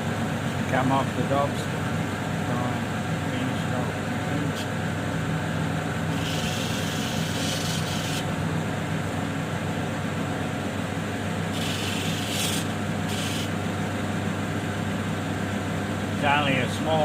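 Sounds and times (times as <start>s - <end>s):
grinding wheel motor hum: 0.0s - 15.2s
stone grinding with a hiss: 6.1s - 8.3s, 11.5s - 13.6s.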